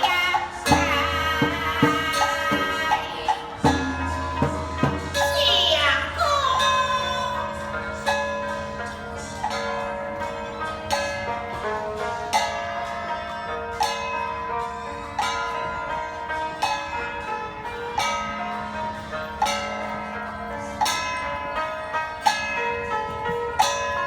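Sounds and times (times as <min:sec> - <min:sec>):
sustained tones: 0:00.0 - 0:09.6
struck metal percussion: 0:00.0 - 0:15.6.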